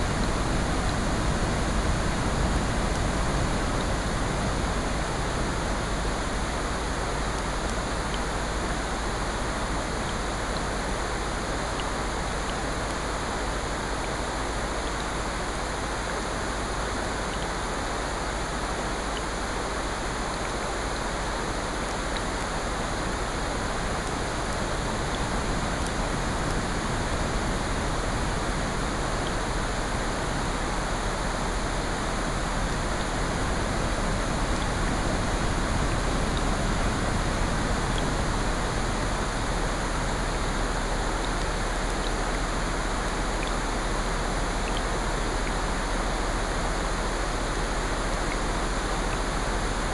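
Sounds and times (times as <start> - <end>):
steady rain: 0.0 - 49.9
ocean surf: 22.0 - 49.9.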